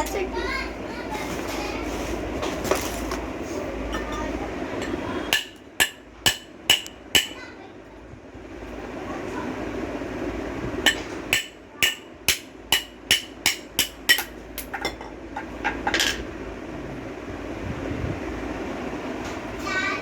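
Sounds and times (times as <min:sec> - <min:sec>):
hammer striking metal: 0:04.8 - 0:07.4, 0:10.9 - 0:14.7.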